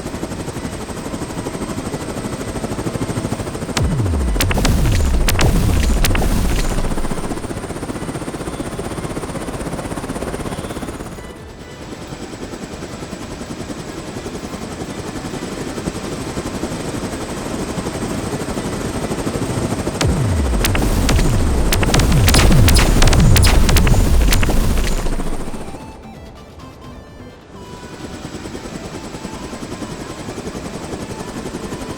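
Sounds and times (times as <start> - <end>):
sharp crack: 3.8 - 7.6, 20.0 - 25.9
helicopter rotor chopping: 3.8 - 7.8, 20.0 - 26.0.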